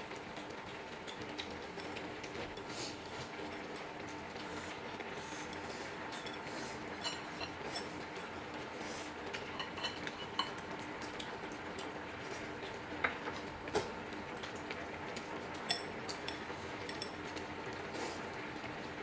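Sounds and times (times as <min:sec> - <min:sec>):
utensils clinking against dishes: 0:05.4 - 0:08.2, 0:09.3 - 0:11.3, 0:15.5 - 0:17.2.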